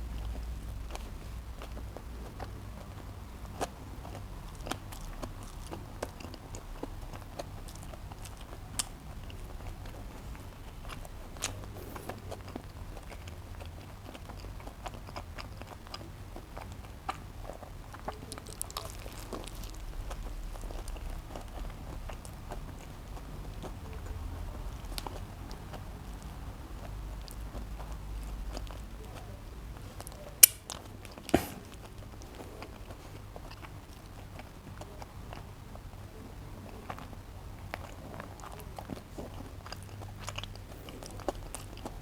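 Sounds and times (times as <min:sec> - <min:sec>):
chewing and biting food: 0:00.0 - 0:42.0
wet mouth clicks: 0:30.1 - 0:33.8.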